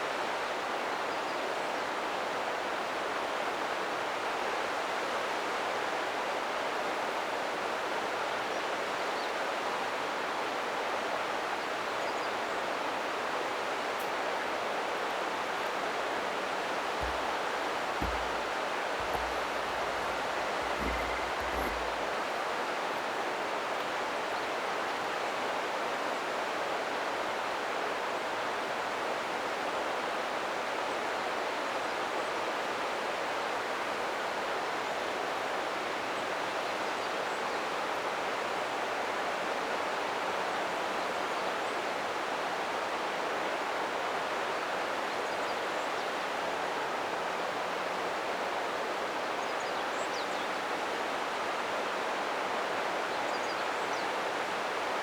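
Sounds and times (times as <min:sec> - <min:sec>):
water rushing over rocks: 0:17.0 - 0:22.0.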